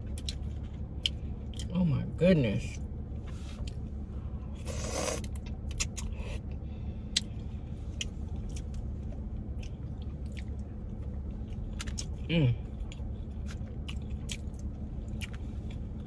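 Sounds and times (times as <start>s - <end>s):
car cabin hum: 0.0s - 16.0s
mouth clicks and chewing: 0.1s - 1.7s, 4.7s - 6.4s, 8.0s - 8.9s, 9.5s - 10.7s, 11.5s - 12.2s, 12.8s - 16.0s.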